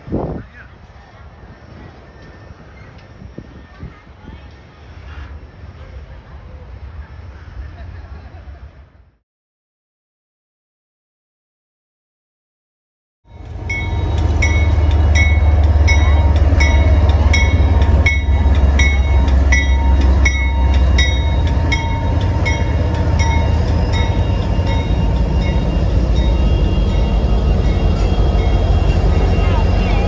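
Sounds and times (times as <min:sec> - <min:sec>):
diesel train engine rumble: 0:00.0 - 0:09.2, 0:13.3 - 0:30.0
bell ringing: 0:13.3 - 0:30.0.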